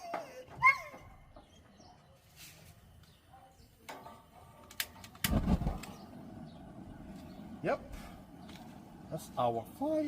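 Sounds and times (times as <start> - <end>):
gas fire whooshing: 3.6 - 10.0
grill igniter clicks: 3.8 - 6.2.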